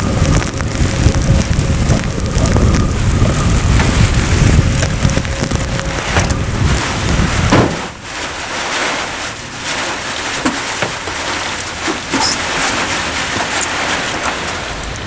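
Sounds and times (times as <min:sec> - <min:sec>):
loud low rumble: 0:00.0 - 0:08.2
heavy rain falling: 0:00.0 - 0:15.0.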